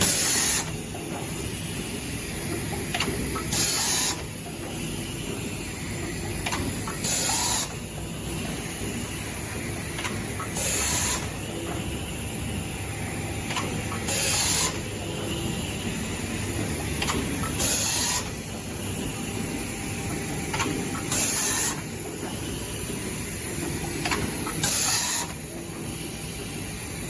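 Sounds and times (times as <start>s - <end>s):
air hiss bursts: 0.0s - 0.7s, 3.5s - 4.3s, 14.1s - 14.8s, 21.1s - 21.9s.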